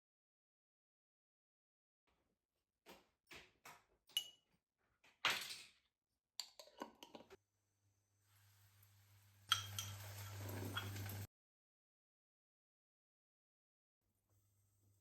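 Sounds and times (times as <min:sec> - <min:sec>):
dishes and utensils clinking: 0:09.5 - 0:11.3.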